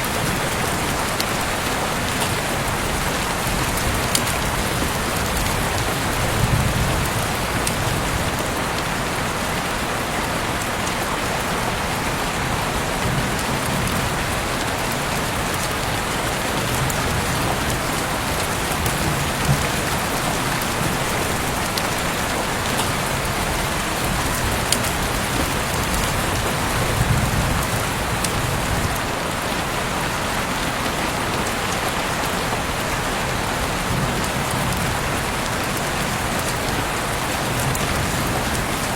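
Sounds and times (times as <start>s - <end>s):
raindrop ticks: 0.0s - 8.9s, 12.8s - 29.1s, 33.7s - 38.9s
heavy rain falling: 0.0s - 38.9s.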